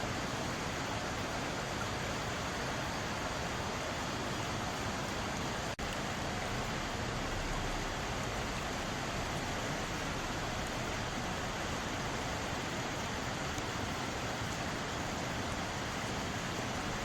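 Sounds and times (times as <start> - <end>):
stream flowing over rocks: 0.0 - 17.0.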